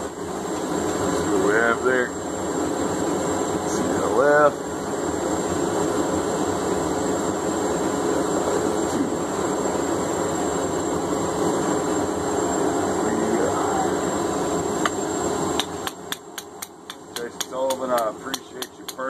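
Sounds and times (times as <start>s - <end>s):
forge roaring: 7.5s - 16.0s
sharp metal taps: 15.6s - 19.0s.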